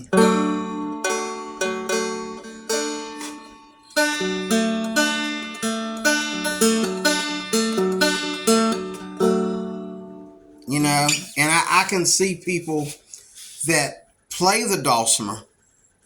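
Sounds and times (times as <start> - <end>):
plucked dulcimer melody: 0.0 - 11.6.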